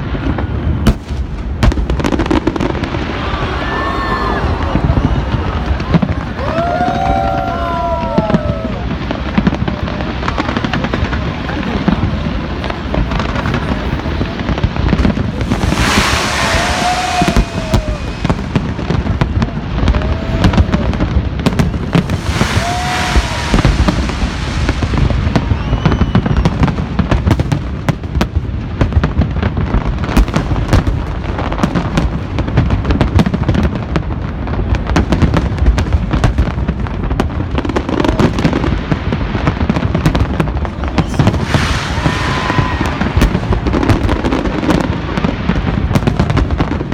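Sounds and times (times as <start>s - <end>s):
fireworks bangs and crackles: 0.0s - 46.9s
fireworks hissing bursts: 0.9s - 27.5s, 38.4s - 46.9s.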